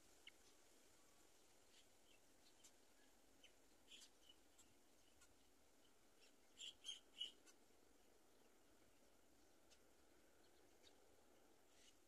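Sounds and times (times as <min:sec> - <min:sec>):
low steady hiss: 0:00.0 - 0:12.0
high bird chirps: 0:01.7 - 0:04.7, 0:06.2 - 0:07.5.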